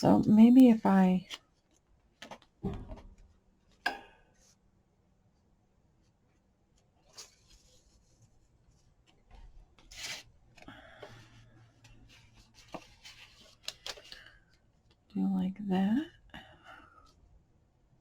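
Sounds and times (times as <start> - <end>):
paper rustling and scraping: 7.0 - 10.7, 11.5 - 14.2.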